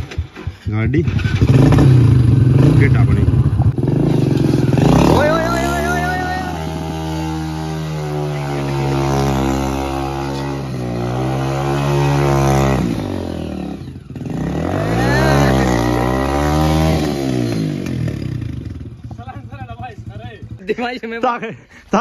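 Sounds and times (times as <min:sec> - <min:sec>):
motorcycle engine revving hard: 0:00.0 - 0:20.6.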